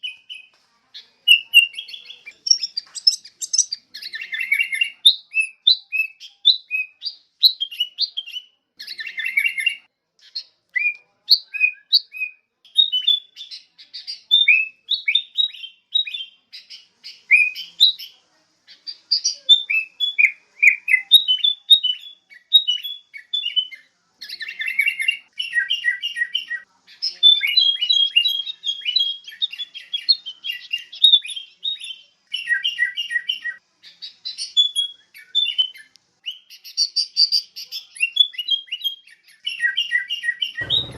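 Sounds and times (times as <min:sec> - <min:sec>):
bird chirping and whistling: 0:01.3 - 0:06.9.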